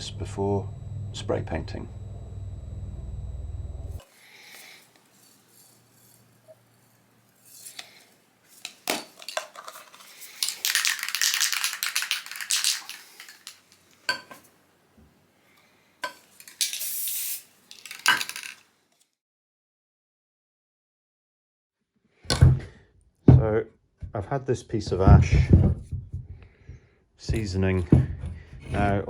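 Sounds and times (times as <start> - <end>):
spray paint can rattling: 8.5 - 13.9, 16.4 - 18.6
spray can hiss: 16.4 - 18.1.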